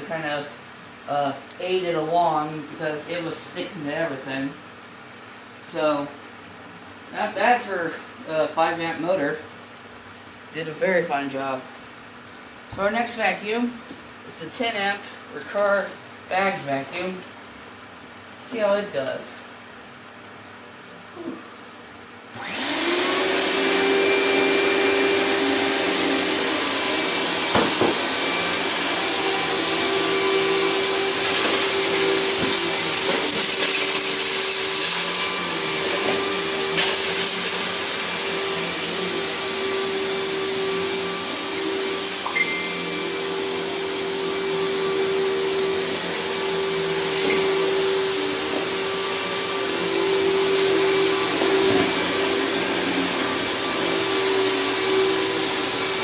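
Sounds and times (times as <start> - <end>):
vacuum cleaner motor running: 22.3 - 56.0.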